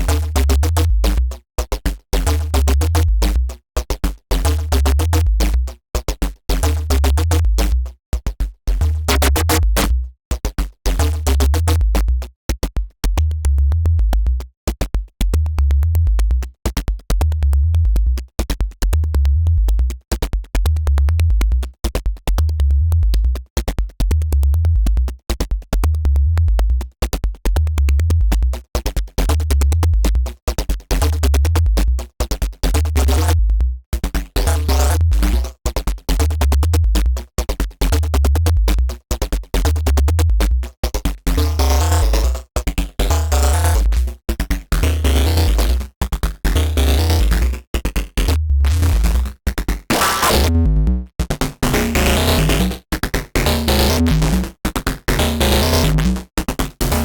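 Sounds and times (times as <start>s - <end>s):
synthesizer bass riff: 0.0s - 1.4s, 2.2s - 3.6s, 4.4s - 5.8s, 6.6s - 7.9s, 8.7s - 10.1s, 10.9s - 12.3s, 15.3s - 16.5s, 17.2s - 18.2s, 18.9s - 20.0s, 20.6s - 21.7s, 22.3s - 23.4s, 24.0s - 25.1s, 25.8s - 26.9s, 27.5s - 28.6s, 29.2s - 39.0s, 39.6s - 44.2s, 44.8s - 57.0s
drum machine ticking: 0.0s - 57.0s.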